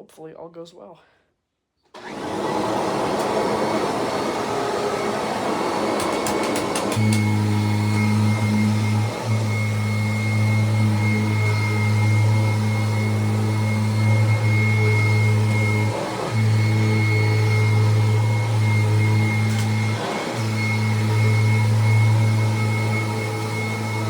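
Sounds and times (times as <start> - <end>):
vacuum cleaner running: 1.9 - 24.0.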